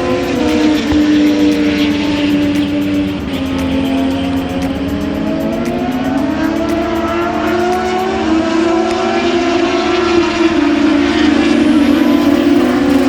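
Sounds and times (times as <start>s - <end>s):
racing motorcycle engines: 10.8s - 13.0s.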